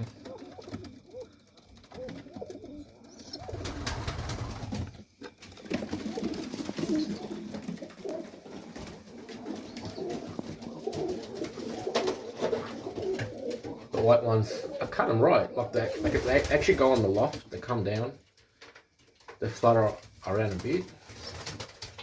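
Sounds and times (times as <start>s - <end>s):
pigeons cooing: 0.0s - 16.6s.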